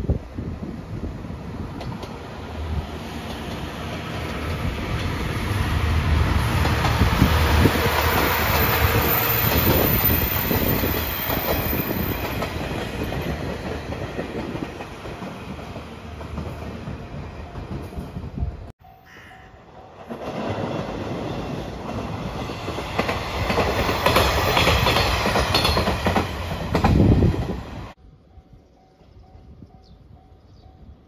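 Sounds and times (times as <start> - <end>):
diesel train passing: 0.0 - 31.0
wheels clicking over rail joints: 20.0 - 27.5.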